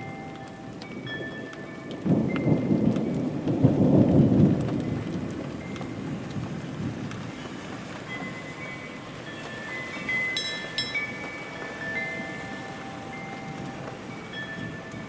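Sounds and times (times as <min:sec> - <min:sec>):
thunder rumbling: 0:00.0 - 0:09.3
steady rain: 0:00.0 - 0:15.0.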